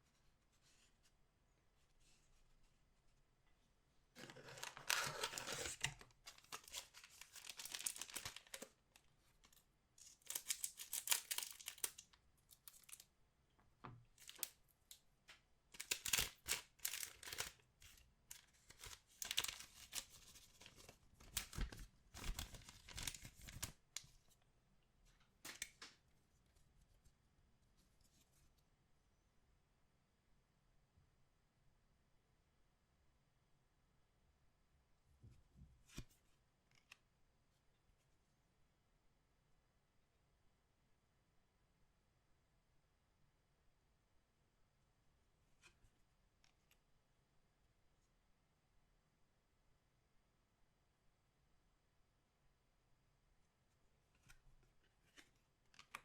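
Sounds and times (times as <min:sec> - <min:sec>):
card pack wrappers tearing: 0:04.2 - 0:08.8, 0:10.0 - 0:12.0, 0:15.8 - 0:17.6, 0:18.7 - 0:20.1
wrappers crinkling: 0:04.2 - 0:08.8, 0:09.5 - 0:13.0, 0:15.8 - 0:18.0, 0:18.7 - 0:23.7.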